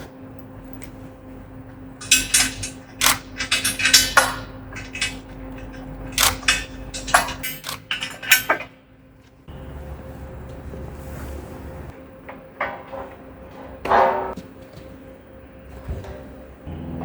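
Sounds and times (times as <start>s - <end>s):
low hum: 0.0s - 17.0s
metal parts clinking: 0.3s - 8.9s, 11.8s - 14.4s.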